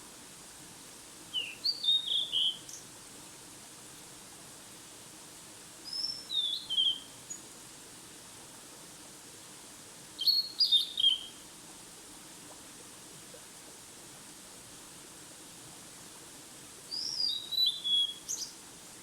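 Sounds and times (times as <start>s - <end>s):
faint background hiss: 0.0s - 19.0s
songbird singing: 1.3s - 2.8s, 5.9s - 7.4s, 10.2s - 11.4s, 16.9s - 18.6s.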